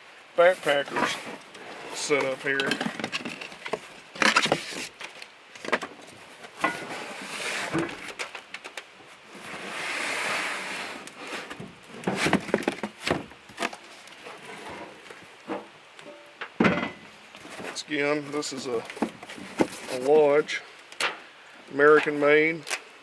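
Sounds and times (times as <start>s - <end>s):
packaging rustling: 0.4s - 6.6s, 17.4s - 20.2s
knocks and clunks of metal pieces: 16.0s - 17.0s.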